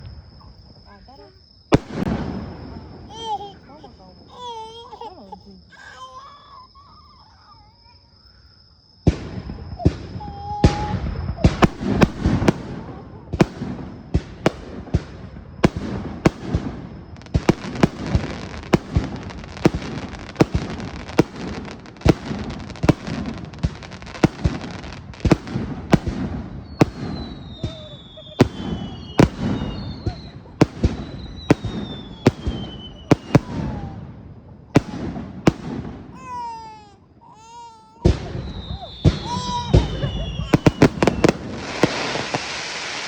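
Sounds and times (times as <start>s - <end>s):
firework bangs: 1.7s - 3.3s, 9.0s - 36.8s, 38.0s - 43.0s
firework crackle: 9.1s - 36.8s, 38.0s - 43.0s
falling whistle tones: 26.6s - 33.8s, 38.1s - 43.0s.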